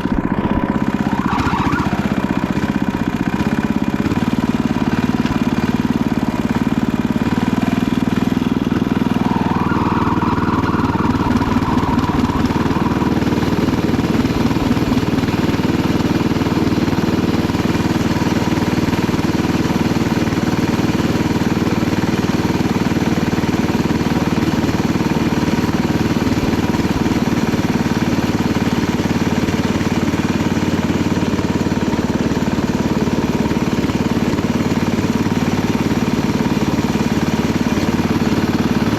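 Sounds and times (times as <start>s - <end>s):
garden tractor engine running: 0.0s - 38.9s.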